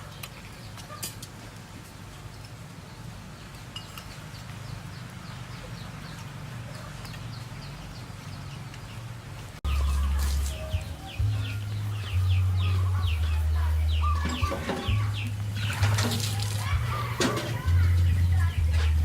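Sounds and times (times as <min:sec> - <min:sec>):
birds chirping: 0:02.0 - 0:19.0
loud low rumble: 0:09.6 - 0:14.3.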